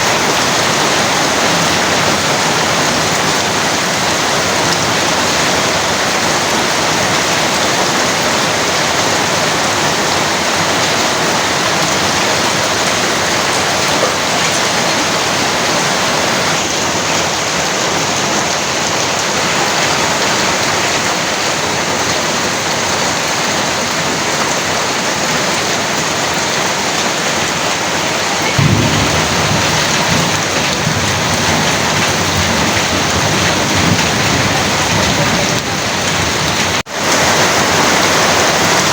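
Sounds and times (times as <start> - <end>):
heavy rain pouring: 0.0 - 38.9
low rumble of thunder: 28.2 - 36.8.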